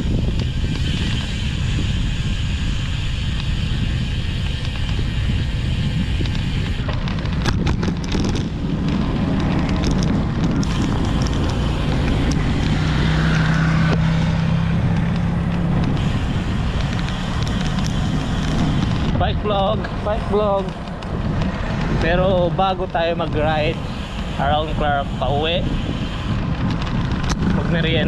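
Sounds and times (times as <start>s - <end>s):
road and traffic noise: 0.0s - 28.0s
wind buffeting microphone: 0.0s - 28.0s
sharp clicks: 6.1s - 23.3s.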